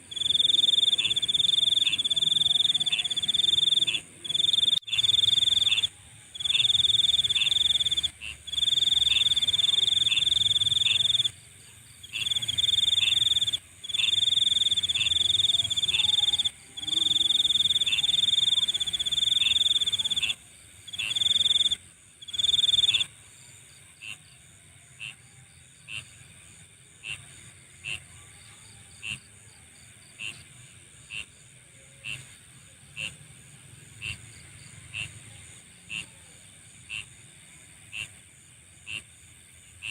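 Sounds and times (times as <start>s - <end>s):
insect background chorus: 0.0s - 39.9s
insect high trill: 0.1s - 11.4s, 12.1s - 23.1s
insect short chirps: 0.1s - 11.4s, 12.1s - 23.1s.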